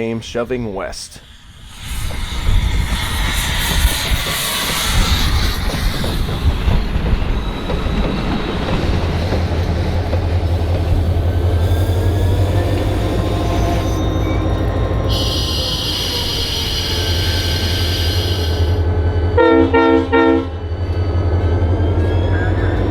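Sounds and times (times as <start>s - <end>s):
wheel squeal: 11.2s - 18.7s
low diesel drone: 12.3s - 20.7s.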